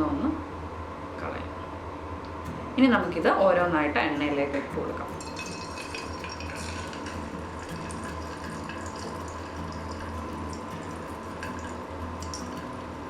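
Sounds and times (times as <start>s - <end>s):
potatoes deep-frying in oil: 5.2s - 13.0s.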